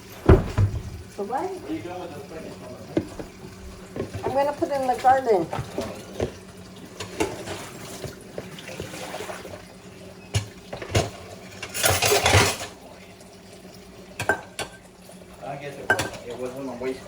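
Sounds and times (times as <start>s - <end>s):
water running from tap: 0.0s - 17.0s
dishes and utensils knocking: 10.4s - 12.7s, 15.9s - 16.2s.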